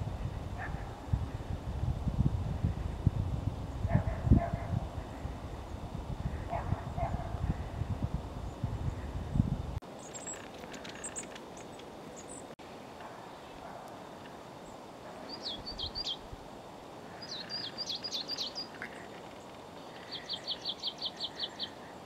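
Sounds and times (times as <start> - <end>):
background hiss: 7.6 - 22.0
tits calling: 9.9 - 16.3, 17.0 - 22.0.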